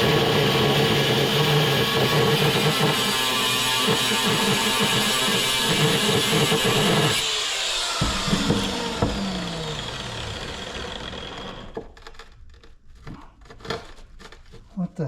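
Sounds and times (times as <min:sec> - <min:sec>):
angle grinder cutting steel: 0:00.0 - 0:12.0
sharp knocks: 0:07.8 - 0:10.8.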